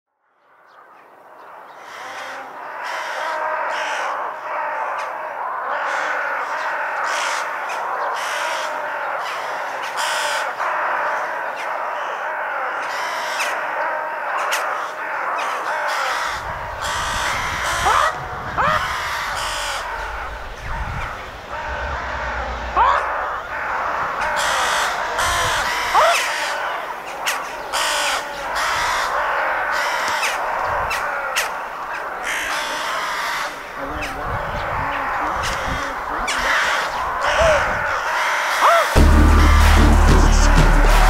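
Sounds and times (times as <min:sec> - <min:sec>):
many birds calling: 0:00.3 - 0:41.0
low rumble: 0:19.0 - 0:24.0.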